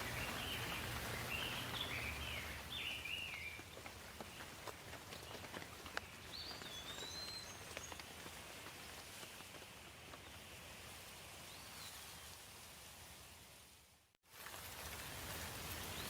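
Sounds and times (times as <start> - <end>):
light rain: 0.0 - 16.0
songbird whistled call: 6.3 - 7.9.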